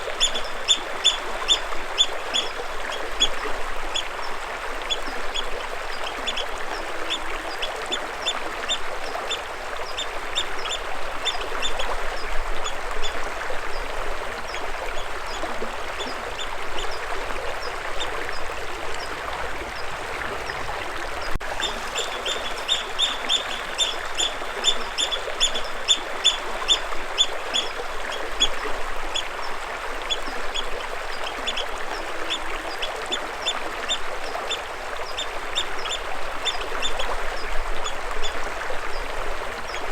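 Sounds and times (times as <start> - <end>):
water running: 21.2 - 25.0
bird chirping: 21.6 - 26.8.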